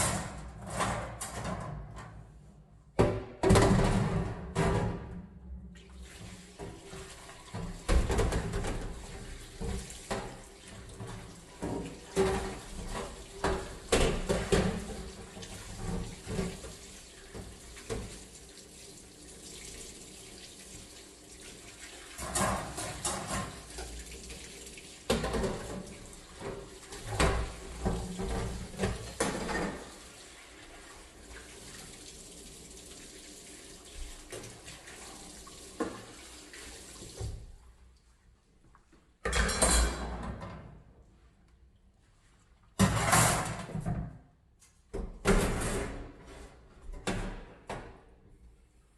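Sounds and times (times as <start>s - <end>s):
knocks and scrubbing of cleaning: 0.0s - 18.4s, 21.5s - 32.1s, 42.8s - 44.2s, 44.9s - 48.0s
water running into a sink: 5.8s - 37.6s.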